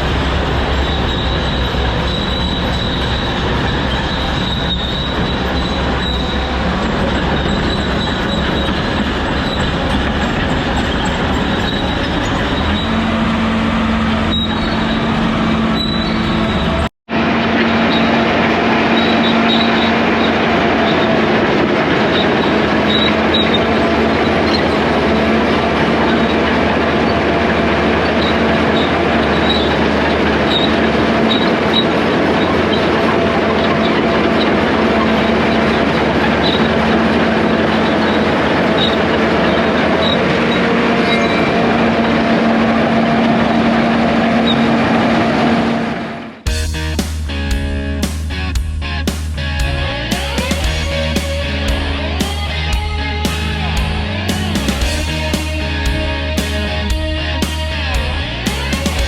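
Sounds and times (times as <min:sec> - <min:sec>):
steel tracks squealing and clanking: 0:00.0 - 0:46.6
diesel engine under load: 0:00.0 - 0:59.0.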